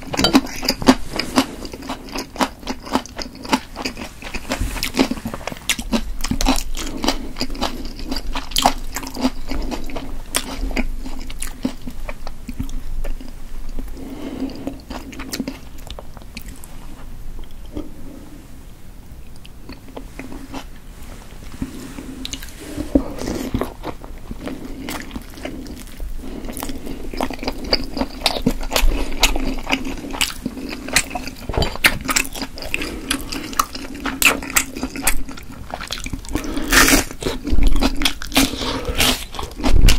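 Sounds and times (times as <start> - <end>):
wet sticky chewing: 0.0 - 13.9, 22.2 - 39.9.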